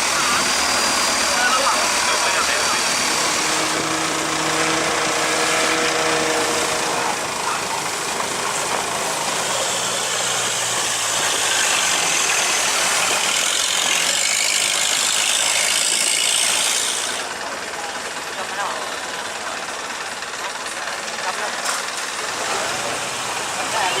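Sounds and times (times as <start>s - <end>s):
boat engine running: 0.0s - 24.0s
low hum: 0.2s - 8.0s.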